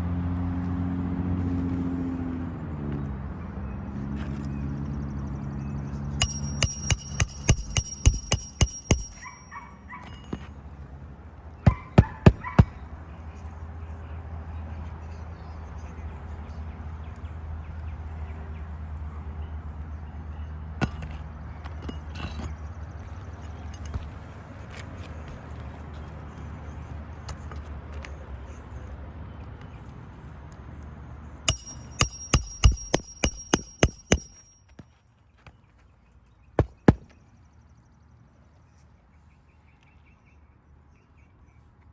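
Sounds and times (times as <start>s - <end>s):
hammer driving nail into shingle: 6.2s - 9.5s, 31.5s - 34.6s.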